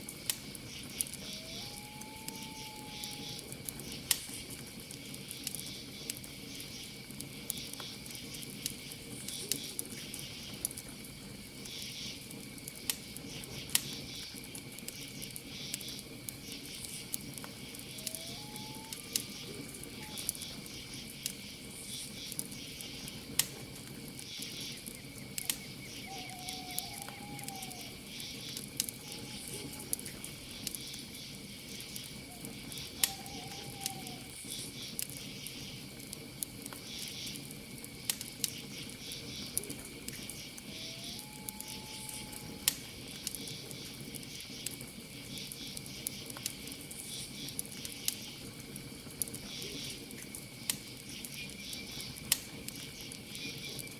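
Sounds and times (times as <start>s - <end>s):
campfire crackling and popping: 0.0s - 53.9s
cricket trill: 0.1s - 53.9s
pulsing insect chirps: 0.7s - 4.0s, 15.6s - 21.2s, 24.3s - 35.8s, 38.7s - 42.7s
owl calls: 1.2s - 3.4s, 17.8s - 20.5s, 25.4s - 28.0s, 29.0s - 30.0s, 32.3s - 34.4s, 40.6s - 42.7s.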